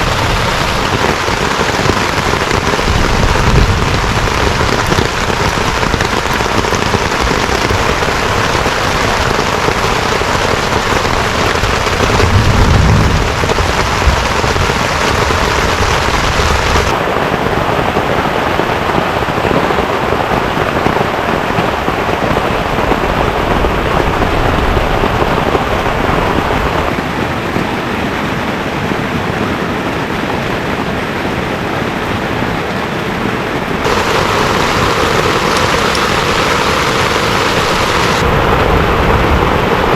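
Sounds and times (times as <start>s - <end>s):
heavy rain falling: 0.0s - 39.9s
low rumble: 11.6s - 16.9s.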